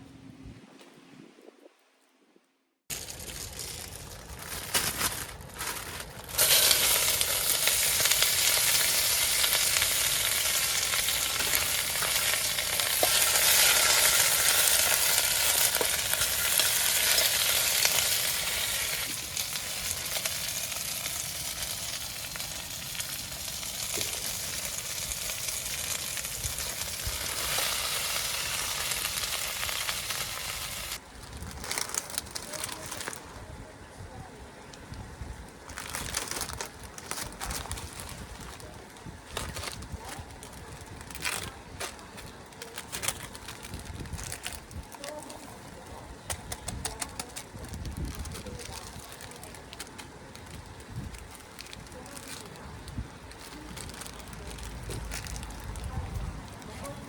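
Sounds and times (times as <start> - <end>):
food sizzling in a hot pan: 6.4 - 31.0.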